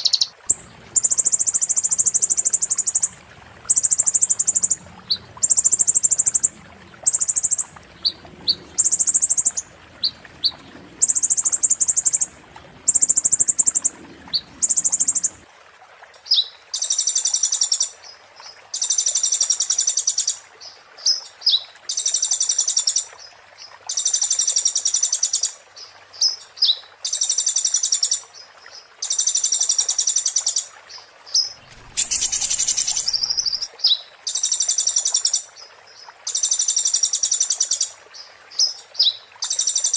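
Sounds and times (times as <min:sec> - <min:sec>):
songbird buzzy chattering: 0:31.6 - 0:33.7.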